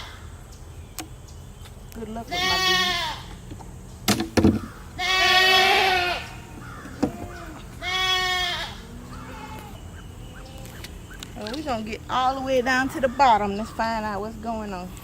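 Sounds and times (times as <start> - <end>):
goats bleating: 2.3 - 3.3, 4.6 - 11.2.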